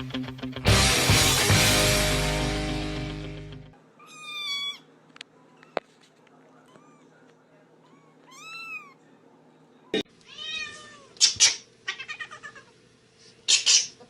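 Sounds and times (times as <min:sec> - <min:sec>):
loud music chord: 0:00.5 - 0:03.7
cat meowing: 0:04.0 - 0:04.9, 0:06.6 - 0:07.2, 0:07.8 - 0:09.0, 0:10.2 - 0:12.7.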